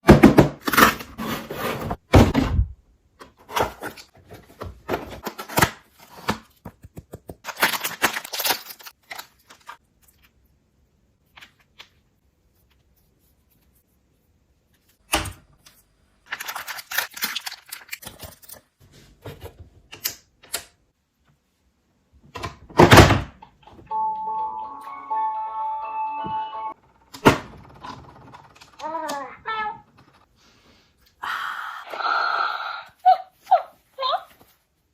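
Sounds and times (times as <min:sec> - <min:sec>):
plastic packaging clicks and rustles: 0:07.2 - 0:10.3, 0:16.2 - 0:18.8.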